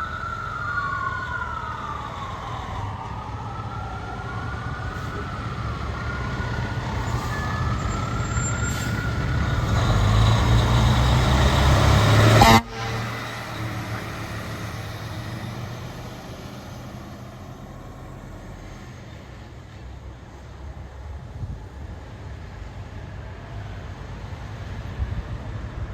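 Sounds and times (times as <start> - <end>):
siren wailing: 0.0 - 17.2
diesel engine rumbling: 0.0 - 25.9.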